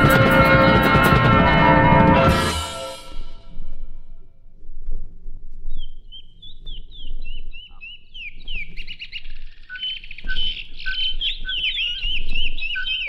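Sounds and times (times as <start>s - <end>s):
birds chirping: 5.7s - 13.0s.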